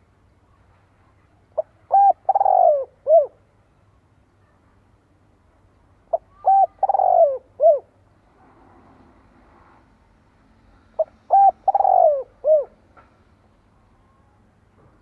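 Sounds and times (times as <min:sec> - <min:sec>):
dove cooing: 0:01.6 - 0:03.4, 0:06.1 - 0:08.0, 0:11.0 - 0:12.8.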